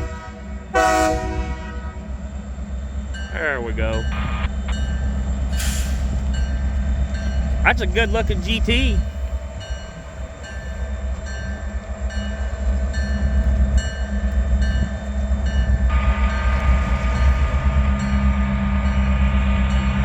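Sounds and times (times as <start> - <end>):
freight train rumbling past: 0.0 - 20.0
chord of higher tones: 3.4 - 5.1.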